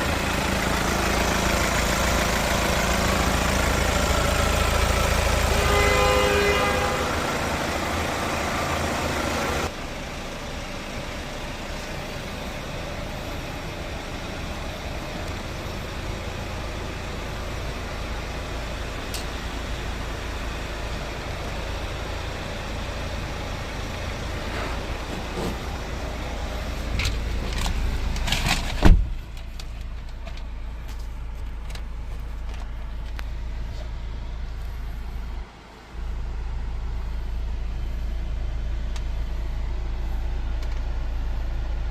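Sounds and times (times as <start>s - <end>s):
diesel engine humming: 0.0s - 41.9s
steady low rumble: 0.0s - 41.9s
car door shutting: 27.0s - 29.2s.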